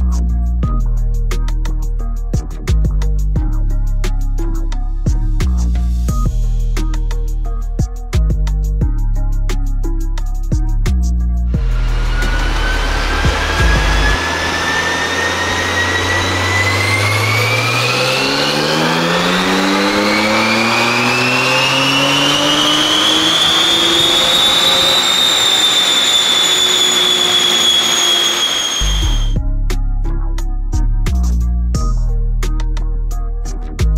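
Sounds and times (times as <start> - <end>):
car engine revving on dyno: 11.6 - 29.4.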